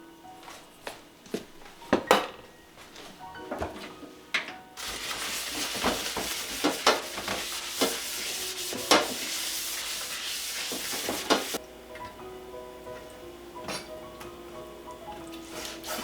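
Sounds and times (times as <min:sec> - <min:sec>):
utensil clacking against pan: 0:04.4 - 0:09.4, 0:10.6 - 0:11.6
food sizzling in a frying pan: 0:04.8 - 0:08.3
utensil scraping a pan: 0:04.8 - 0:11.6, 0:15.5 - 0:16.0.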